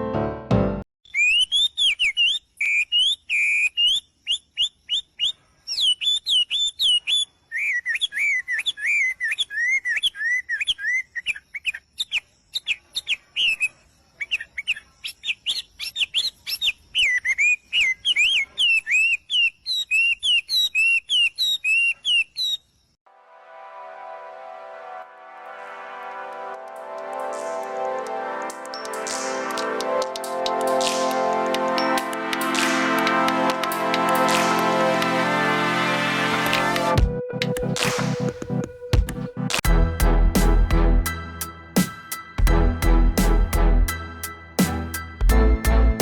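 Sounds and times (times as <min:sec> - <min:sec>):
parrot chirping and whistling: 0:01.1 - 0:11.4.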